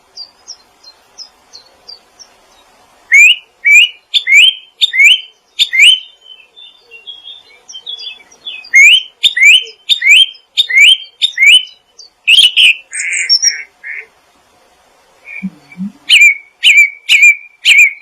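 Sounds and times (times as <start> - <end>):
soft bird twittering: 0.1 - 14.1, 15.2 - 18.0
songbird whistling: 3.1 - 13.7, 15.3 - 18.0.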